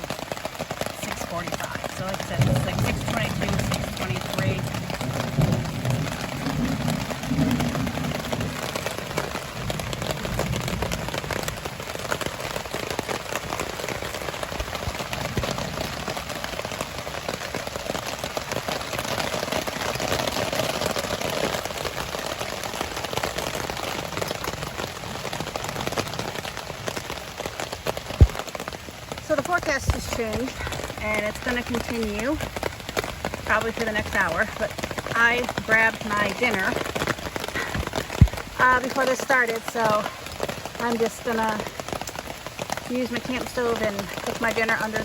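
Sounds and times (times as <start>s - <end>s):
rain on an awning: 0.0s - 45.0s.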